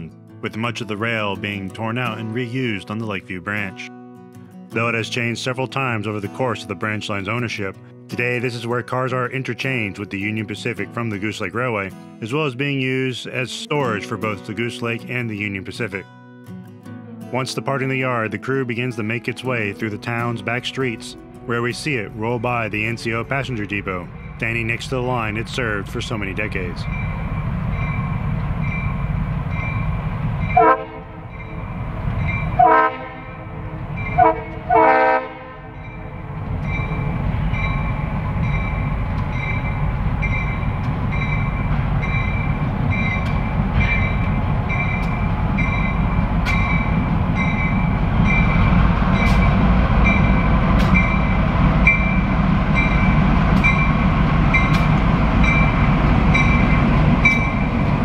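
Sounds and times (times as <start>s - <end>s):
locomotive engine rumble: 19.7s - 58.0s
train wheels on rails: 22.9s - 32.6s, 35.8s - 58.0s
bell ringing: 23.5s - 32.6s, 33.3s - 34.6s, 35.7s - 57.9s
locomotive horn: 29.9s - 36.3s.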